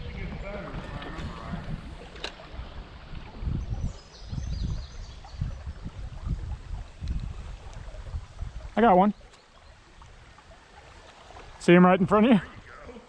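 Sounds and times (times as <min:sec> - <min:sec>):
wind on microphone: 0:00.0 - 0:09.0
creek water rushing: 0:00.0 - 0:13.0.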